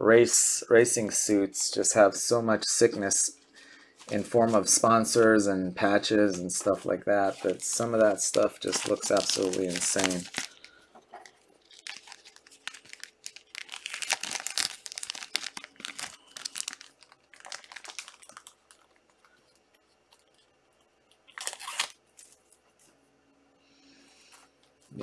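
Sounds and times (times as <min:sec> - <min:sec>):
plastic wrappers crinkling and tearing: 0:06.6 - 0:22.7.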